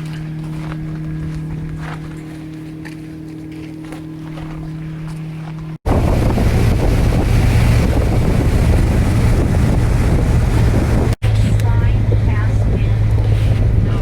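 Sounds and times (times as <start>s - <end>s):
boat engine running: 0.0s - 14.0s
steady low hum: 0.0s - 14.0s
wind buffeting microphone: 5.6s - 14.0s.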